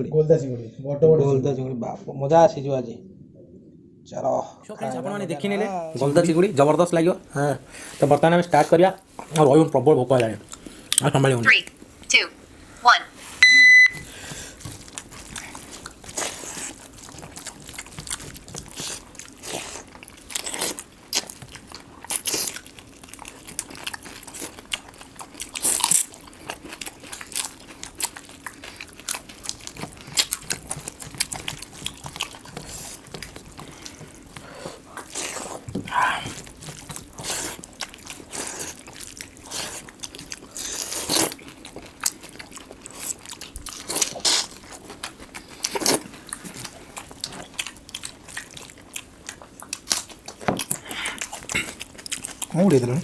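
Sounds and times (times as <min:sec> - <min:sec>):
people chewing and crunching food: 0:04.9 - 0:53.0
short high beep: 0:13.4 - 0:14.0.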